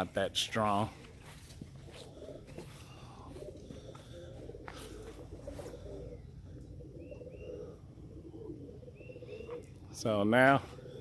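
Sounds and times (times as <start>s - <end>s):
pigeons cooing: 0.8s - 11.0s.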